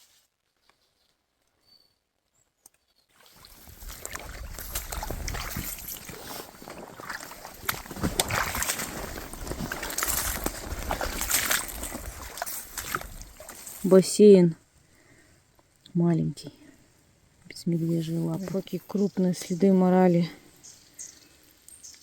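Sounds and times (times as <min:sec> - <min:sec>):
footsteps on a wet trail: 0:03.2 - 0:14.0.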